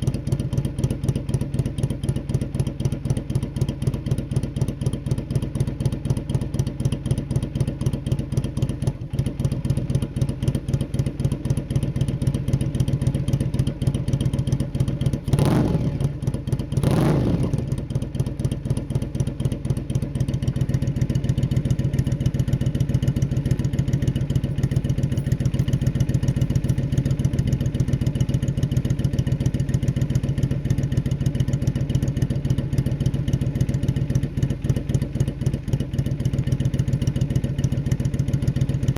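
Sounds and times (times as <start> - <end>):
motorcycle engine idling: 0.0 - 38.9
motorcycle throttle blips: 15.2 - 18.6, 20.4 - 29.0.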